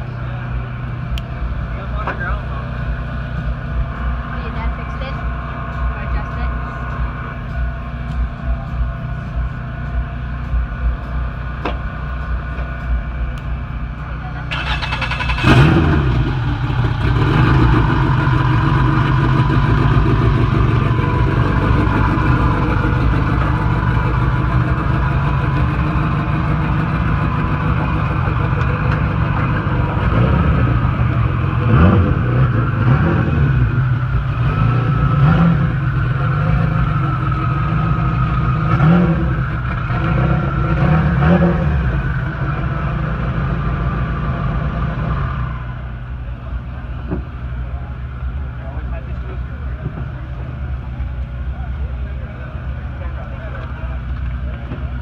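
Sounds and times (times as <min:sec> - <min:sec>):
turbocharged car engine revving: 0:14.4 - 0:46.0.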